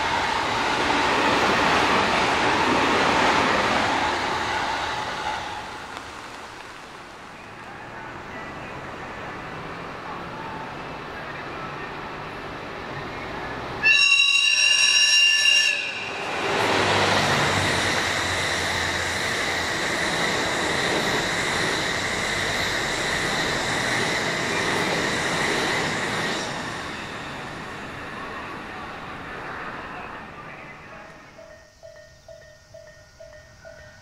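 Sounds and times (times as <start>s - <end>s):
train passing wheel noise: 0.0s - 34.0s
train horn: 13.8s - 16.3s.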